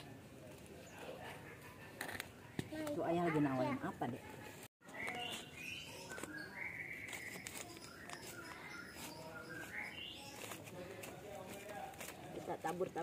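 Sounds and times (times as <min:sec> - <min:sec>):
birds chirping: 0:03.0 - 0:13.0.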